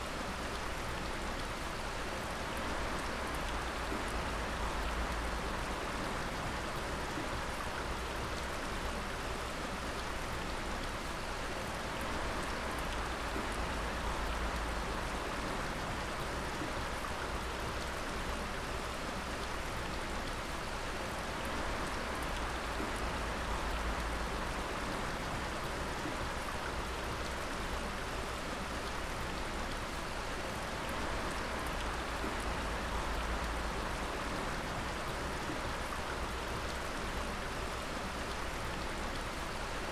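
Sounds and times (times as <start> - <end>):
dripping water patter: 21.4 - 39.8.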